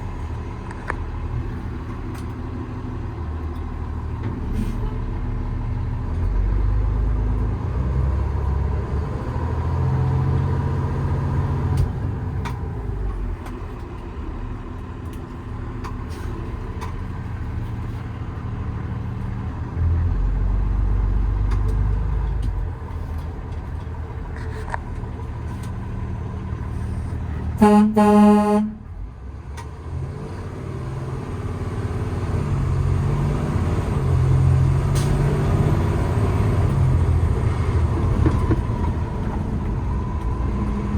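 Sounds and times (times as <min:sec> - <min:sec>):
road noise: 0:00.0 - 0:40.9
truck diesel engine rumble: 0:00.0 - 0:40.9
truck horn: 0:27.6 - 0:29.0.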